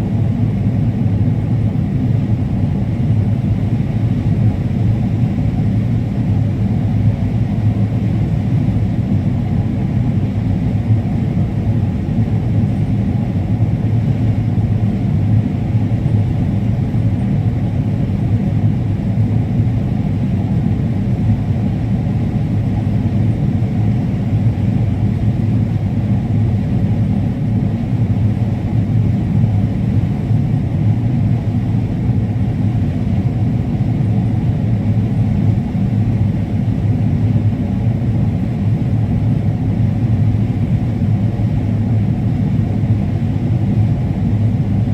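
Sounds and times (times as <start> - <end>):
combine harvester engine drone: 0.0 - 44.9.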